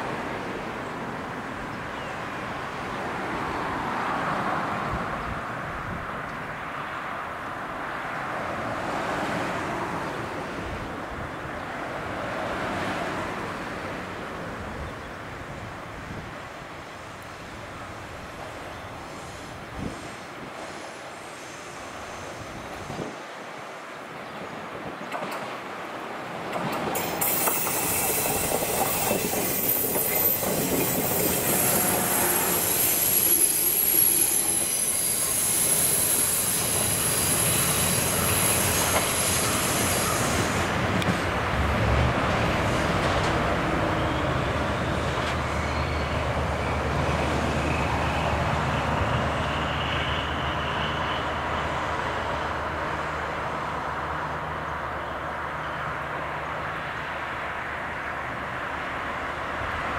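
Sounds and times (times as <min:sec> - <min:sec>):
train wheel squeal: 0:26.9 - 0:40.8, 0:42.7 - 0:52.7.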